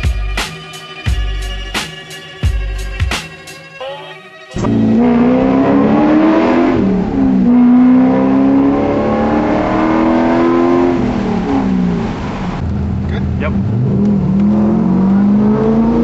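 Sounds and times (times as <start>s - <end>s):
car engine accelerating: 4.6s - 16.0s.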